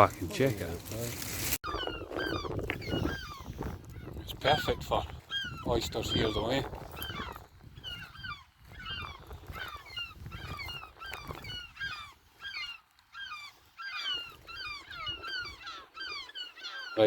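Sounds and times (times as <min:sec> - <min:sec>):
wind rumble on microphone: 0:00.8 - 0:12.1
shrill piping bird calls: 0:01.7 - 0:17.0.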